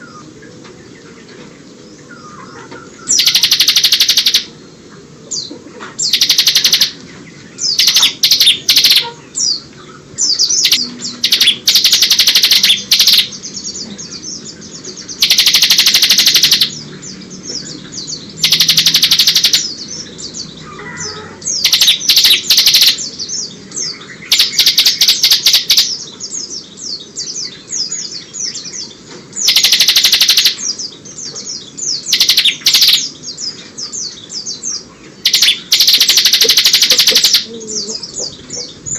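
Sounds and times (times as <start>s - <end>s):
high bird chirping: 2.2s - 4.6s, 5.4s - 38.9s
bird buzzing trills: 3.1s - 4.6s, 6.0s - 7.0s, 7.7s - 9.6s, 10.3s - 13.4s, 15.1s - 16.8s, 18.4s - 19.8s, 24.3s - 26.0s, 29.4s - 30.7s, 35.2s - 38.9s.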